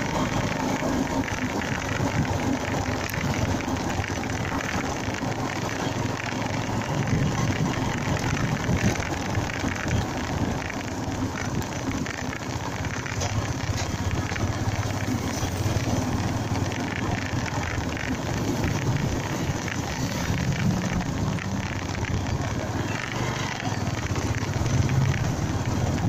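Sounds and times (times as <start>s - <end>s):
motorcycle engine running: 0.0s - 26.0s
wind buffeting microphone: 6.7s - 22.8s.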